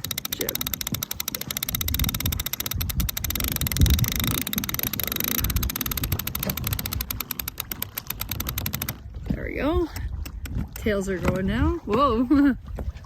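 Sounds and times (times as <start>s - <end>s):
winch ratcheting clicks: 0.0s - 9.1s
wind rumbling on microphone: 0.0s - 13.0s.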